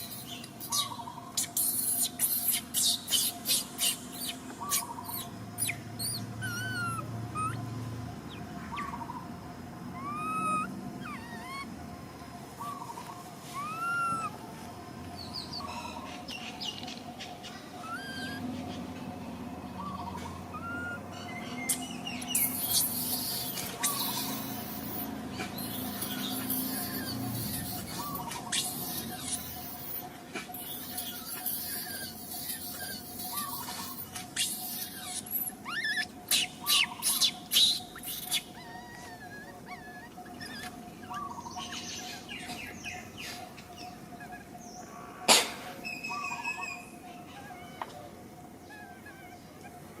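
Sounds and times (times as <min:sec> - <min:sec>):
baby monkey squeaking: 0:00.0 - 0:07.6, 0:10.0 - 0:11.7, 0:12.7 - 0:14.4, 0:17.8 - 0:18.5, 0:20.5 - 0:21.0, 0:21.6 - 0:44.5.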